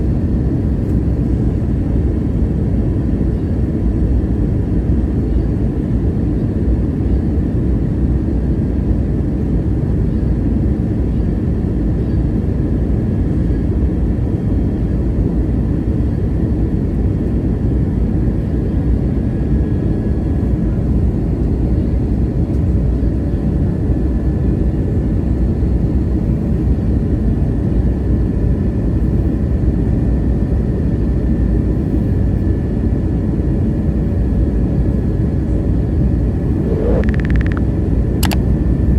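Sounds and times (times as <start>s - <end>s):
airplane cabin engine rumble: 0.0s - 38.9s
faint high whine: 35.8s - 38.9s.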